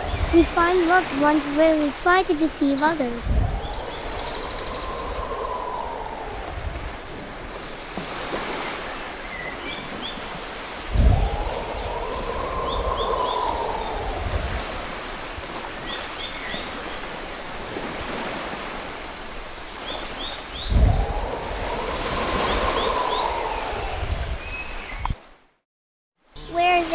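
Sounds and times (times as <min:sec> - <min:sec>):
birds chirping: 0:00.0 - 0:07.2, 0:08.8 - 0:14.9, 0:19.8 - 0:25.1
rushing water: 0:00.0 - 0:25.2.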